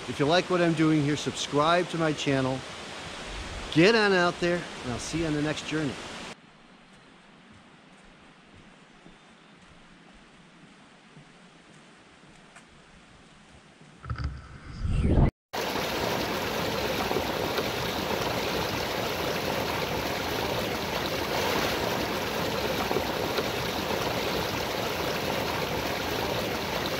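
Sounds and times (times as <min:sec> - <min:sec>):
rushing stream water: 0:00.0 - 0:06.4, 0:15.6 - 0:26.9.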